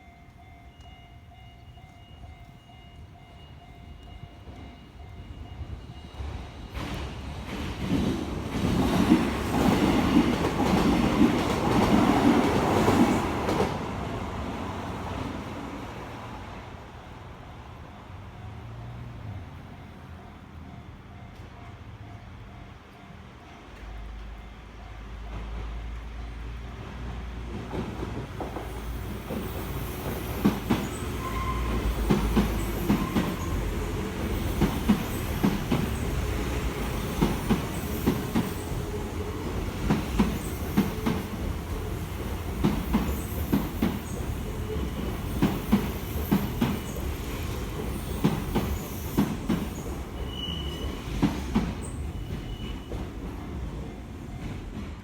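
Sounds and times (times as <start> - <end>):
train rumbling past: 0.0 - 55.0
wheel squeals: 47.9 - 51.2, 51.8 - 53.1.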